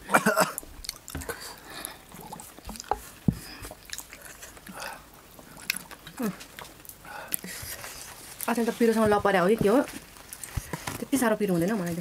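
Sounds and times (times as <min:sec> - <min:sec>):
biting and chewing meat: 0:00.5 - 0:08.6
wet mouth clicks: 0:03.6 - 0:07.5.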